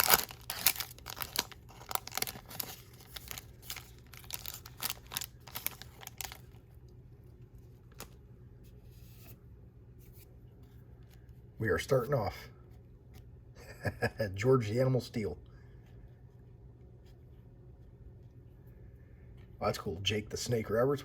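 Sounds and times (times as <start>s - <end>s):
plastic wrapper tearing and crinkling: 0.0s - 6.6s.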